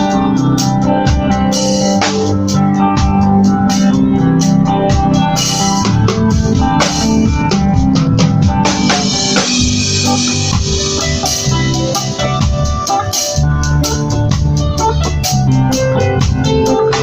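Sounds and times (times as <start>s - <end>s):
drum kit steady beat: 0.0s - 17.0s
electronic organ chords: 0.0s - 17.0s
reggae band music: 0.0s - 17.0s.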